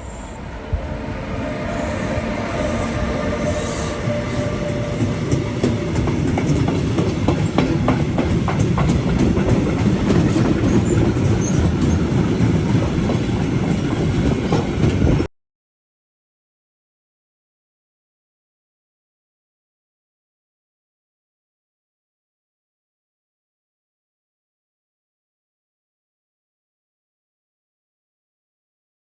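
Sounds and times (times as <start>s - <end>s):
train passing through station: 0.0s - 15.3s
wheels clacking over rail joints: 4.1s - 15.3s.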